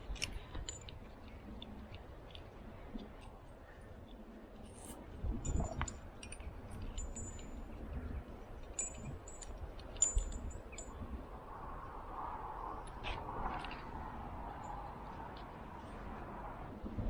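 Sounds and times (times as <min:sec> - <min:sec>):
rumble of handling and wind: 0:00.0 - 0:17.0
carabiners clinking and jingling: 0:00.2 - 0:01.0, 0:05.4 - 0:11.3.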